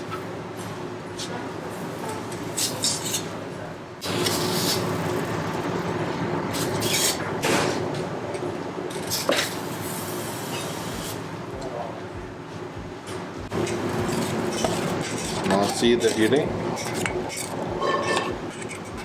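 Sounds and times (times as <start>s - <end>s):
machine hum: 4.0s - 8.9s, 9.6s - 19.0s.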